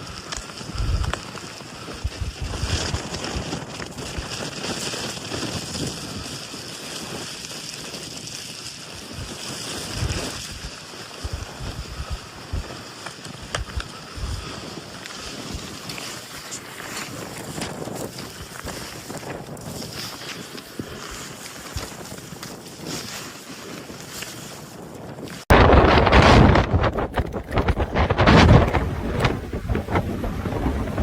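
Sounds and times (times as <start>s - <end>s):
wind gusts thumping microphone: 0.0s - 31.0s
storm wind rushing: 0.6s - 4.8s, 9.0s - 16.1s, 25.5s - 31.0s.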